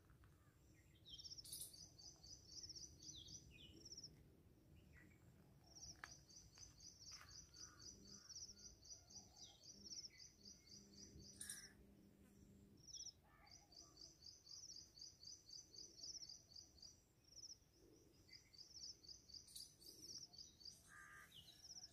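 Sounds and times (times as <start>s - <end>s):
scattered bird calls: 4.9s - 11.8s, 18.2s - 21.9s.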